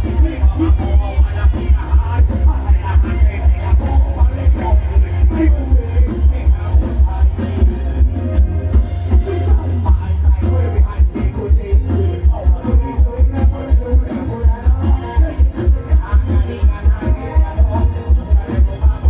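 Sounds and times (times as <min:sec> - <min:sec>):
loud dance music: 0:00.0 - 0:19.0.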